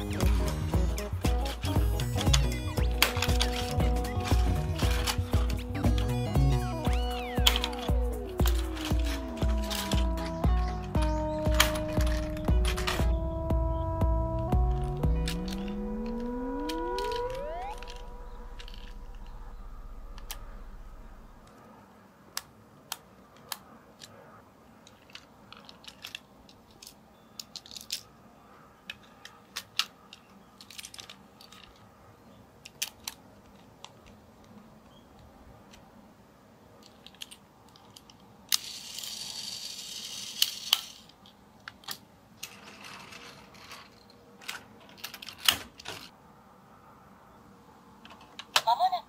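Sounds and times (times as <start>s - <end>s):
toy train cars clicking: 0.0s - 13.2s, 24.8s - 28.2s, 28.8s - 31.9s, 32.6s - 34.6s, 36.8s - 46.1s, 48.0s - 49.0s
toy train hooks coupling: 0.0s - 13.2s, 24.9s - 28.1s, 32.6s - 34.0s, 36.8s - 46.1s
plastic scraping rustle: 1.4s - 13.1s, 42.4s - 46.1s.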